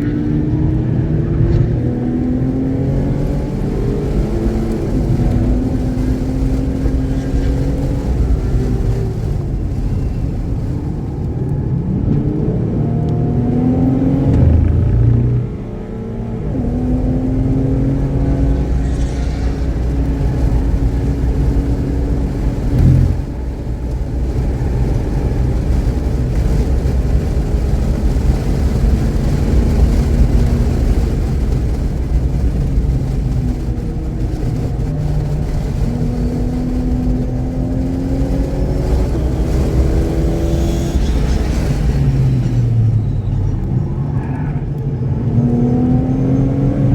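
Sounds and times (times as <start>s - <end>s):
race car engine accelerating: 0.0s - 46.9s
short thud: 22.7s - 23.4s.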